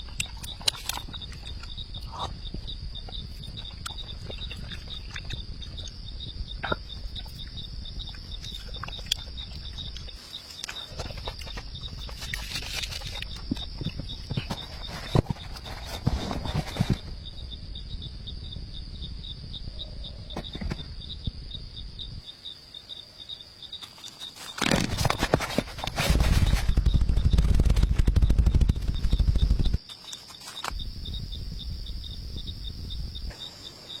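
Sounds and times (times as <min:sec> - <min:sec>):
crickets chirping: 0:00.0 - 0:34.0
knocks and rustles: 0:10.6 - 0:17.2, 0:20.3 - 0:21.0, 0:23.8 - 0:30.8.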